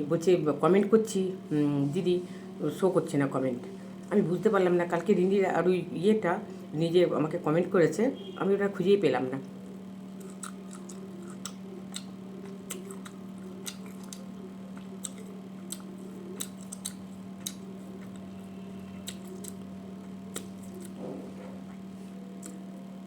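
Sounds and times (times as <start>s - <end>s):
steady low hum: 0.0s - 23.0s
soft chewing: 10.1s - 22.8s.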